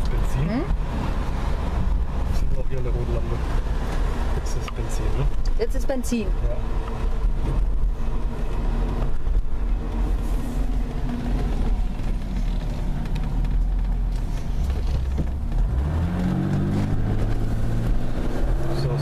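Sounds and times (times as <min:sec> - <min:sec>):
car engine running from inside cabin: 0:00.0 - 0:19.0.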